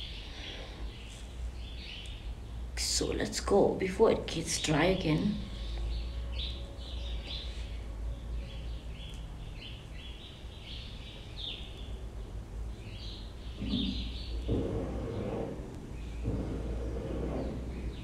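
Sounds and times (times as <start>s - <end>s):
bird chirping: 5.5s - 18.0s.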